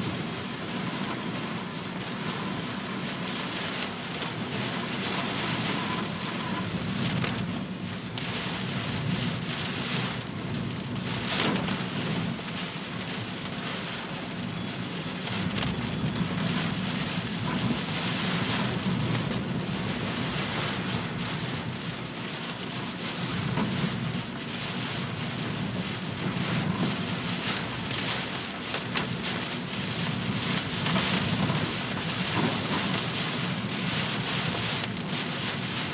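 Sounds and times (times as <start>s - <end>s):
heavy rain pouring: 0.0s - 35.9s.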